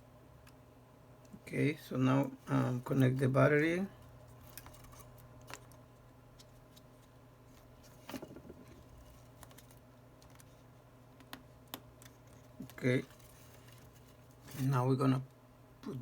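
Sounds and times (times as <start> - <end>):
small clicks and taps of tools: 11.2 - 12.8.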